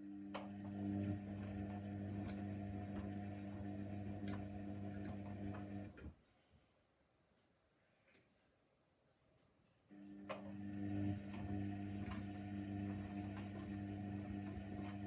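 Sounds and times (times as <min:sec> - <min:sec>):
washing machine humming: 0:00.0 - 0:06.1, 0:09.9 - 0:15.0.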